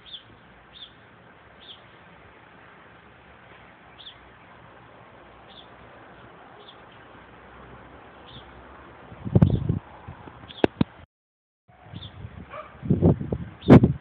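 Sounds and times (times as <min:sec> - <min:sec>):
bird chirping: 0:00.0 - 0:01.0, 0:01.6 - 0:02.0, 0:03.5 - 0:04.6, 0:05.4 - 0:07.1, 0:08.2 - 0:08.6, 0:10.4 - 0:10.8, 0:11.9 - 0:12.2.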